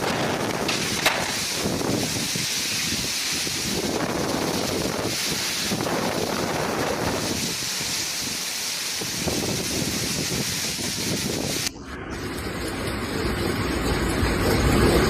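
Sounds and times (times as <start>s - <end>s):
strong wind gusts on microphone: 0.0s - 7.6s, 9.0s - 11.7s.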